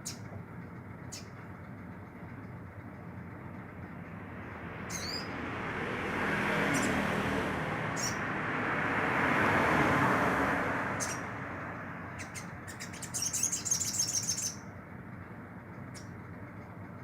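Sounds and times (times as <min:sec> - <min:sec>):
small bird chirping: 0:00.0 - 0:00.3, 0:01.0 - 0:01.4, 0:04.8 - 0:05.4, 0:08.0 - 0:08.2, 0:11.0 - 0:11.3, 0:12.1 - 0:14.7
road vehicle passing: 0:02.7 - 0:17.0.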